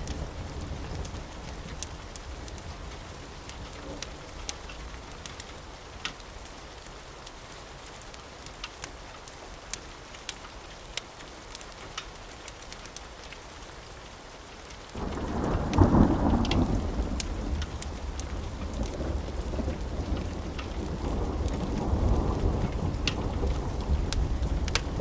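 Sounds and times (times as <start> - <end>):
steady rain: 0.0 - 25.0
rolling thunder: 15.0 - 25.0.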